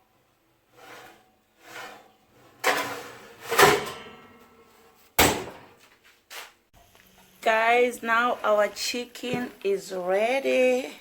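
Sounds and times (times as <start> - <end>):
baking tray scraping and clunking: 0.6 - 5.0
sharp knock: 5.2 - 5.7.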